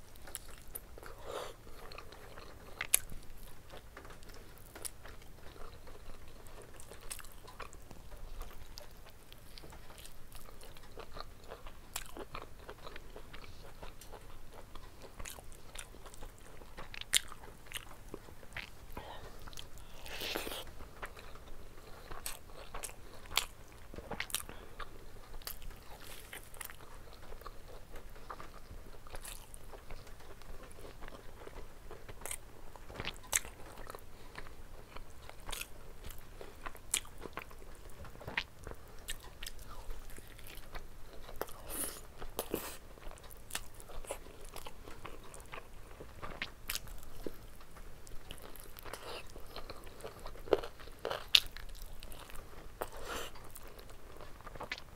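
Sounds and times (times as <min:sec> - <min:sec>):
person chewing food: 0:00.0 - 0:54.9.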